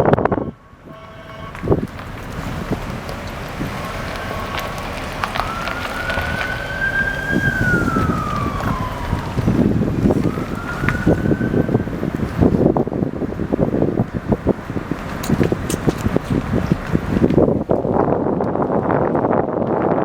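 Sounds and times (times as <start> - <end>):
siren wailing: 0.0 - 12.6
vehicle and wind rumble: 0.0 - 20.0.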